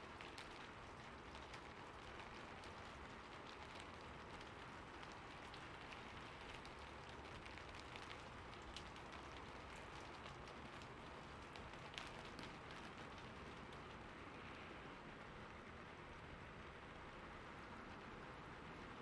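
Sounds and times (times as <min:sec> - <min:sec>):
raindrop ticks: 0:00.0 - 0:14.6
faint rain hiss: 0:00.0 - 0:19.0.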